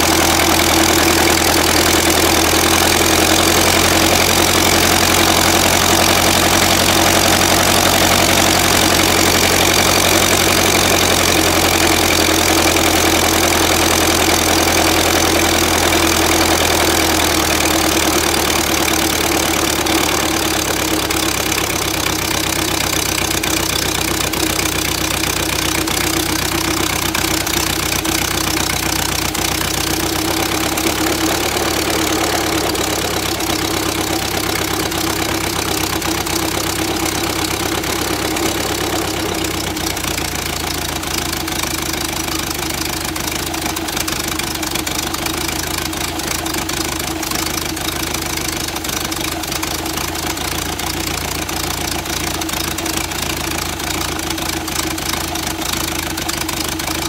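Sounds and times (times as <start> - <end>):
engine running through open exhaust: 0.0 - 57.0.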